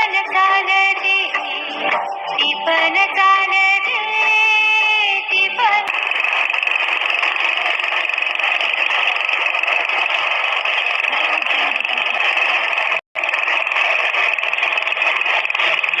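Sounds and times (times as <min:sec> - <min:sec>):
small engine running: 0:05.6 - 0:16.0.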